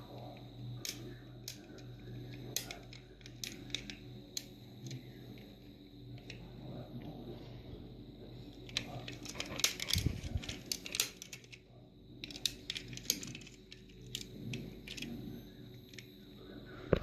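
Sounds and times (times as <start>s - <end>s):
toy car clicks and rattles: 2.5s - 5.0s, 8.6s - 11.6s, 12.2s - 15.2s.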